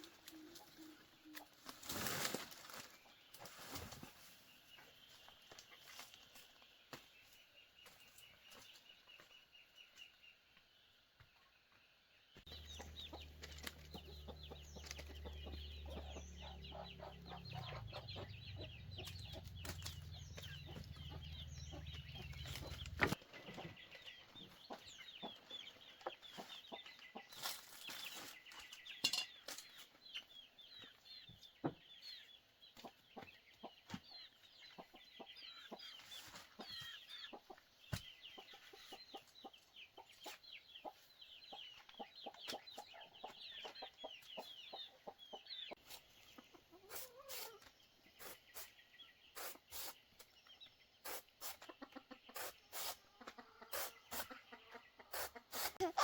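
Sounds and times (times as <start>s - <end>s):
chickens clucking: 12.4s - 29.0s, 29.7s - 56.0s.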